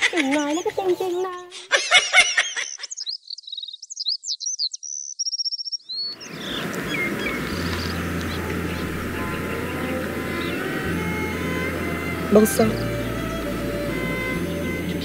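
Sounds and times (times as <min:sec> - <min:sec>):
birds chirping and trilling: 0:00.0 - 0:15.0
steady background hiss: 0:06.2 - 0:15.0
low hum: 0:06.3 - 0:15.0.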